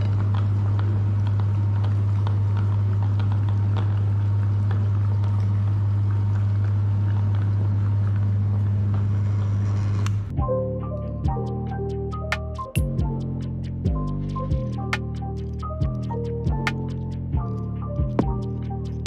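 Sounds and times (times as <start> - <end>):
faint clicks and crackle: 0.0 - 10.3.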